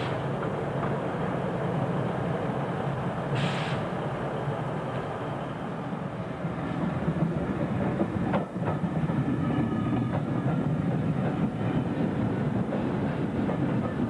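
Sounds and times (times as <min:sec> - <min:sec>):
electric train rumbling: 0:00.0 - 0:14.0
short hiss: 0:03.3 - 0:03.9.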